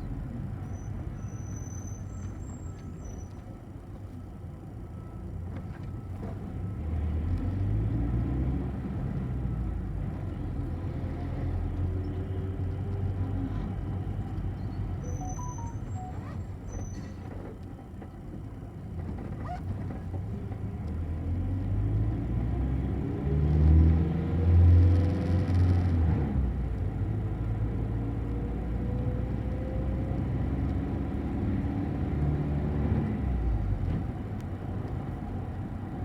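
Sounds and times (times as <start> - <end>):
bus engine and road rumble: 0.0 - 36.0
short high beeps: 15.0 - 17.0.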